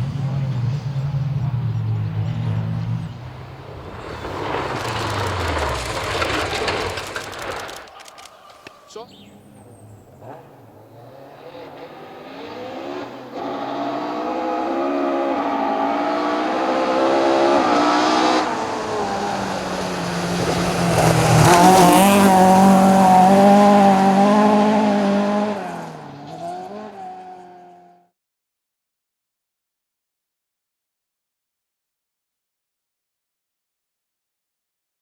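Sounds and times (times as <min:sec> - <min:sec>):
rally car engine at full throttle: 0:00.0 - 0:08.3, 0:09.2 - 0:28.0
tyre and road noise: 0:00.0 - 0:28.0.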